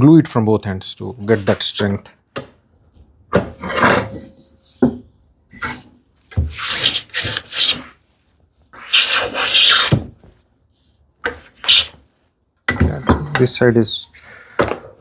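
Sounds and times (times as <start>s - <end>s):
hand plane shaving wood: 6.5s - 7.9s, 8.8s - 10.0s, 11.5s - 11.9s.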